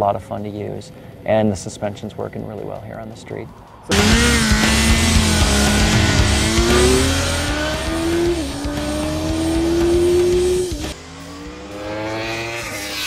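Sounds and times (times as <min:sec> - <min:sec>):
motorcycle engine accelerating: 0:03.9 - 0:13.0.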